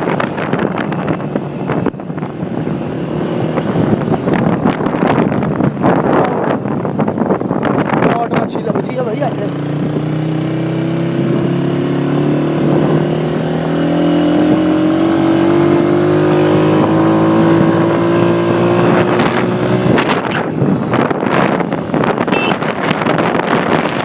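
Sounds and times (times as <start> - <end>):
wind buffeting microphone: 0.0 - 24.0
motorcycle engine rising in pitch: 9.4 - 24.0.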